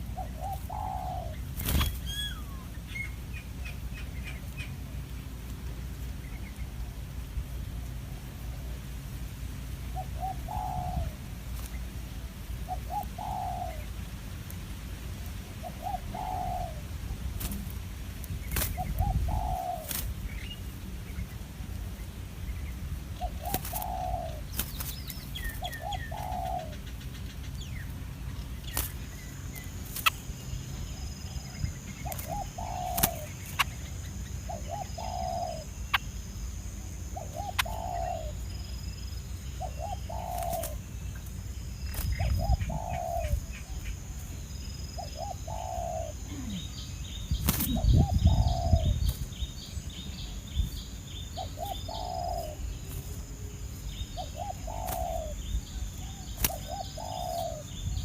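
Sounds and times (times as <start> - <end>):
dove cooing: 0.0 - 2.7, 9.9 - 11.2, 12.7 - 13.9, 15.6 - 17.6, 18.7 - 20.1, 23.2 - 24.5, 25.4 - 26.9, 31.0 - 35.8, 37.1 - 38.4, 39.6 - 40.9, 42.1 - 43.9, 45.0 - 46.8, 47.5 - 49.1, 51.4 - 52.8, 54.1 - 57.8.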